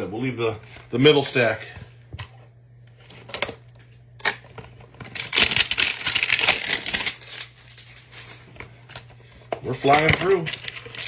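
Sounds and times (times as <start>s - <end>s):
plastic and card crackling: 3.0s - 11.0s
packaging clicks: 5.0s - 8.3s, 9.7s - 11.0s.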